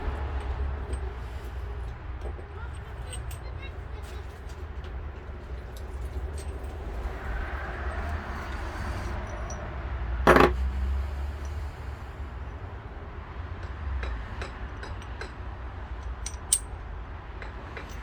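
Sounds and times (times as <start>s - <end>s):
light metal clinks and taps: 0.4s - 10.7s, 13.6s - 15.4s, 16.0s - 16.8s, 17.4s - 18.0s
metal parts clunking: 10.3s - 10.8s, 16.0s - 16.7s.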